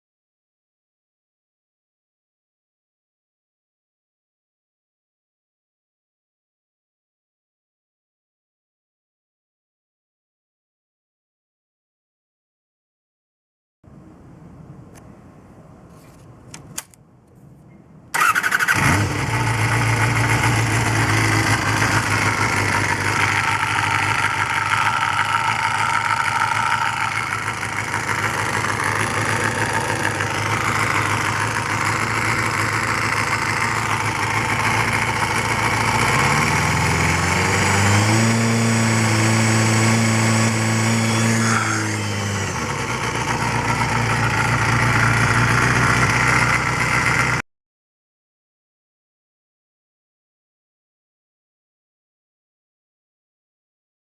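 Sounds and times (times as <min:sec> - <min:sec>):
motorcycle engine starting: 0:18.1 - 0:47.4
motorcycle engine revving: 0:18.2 - 0:47.4.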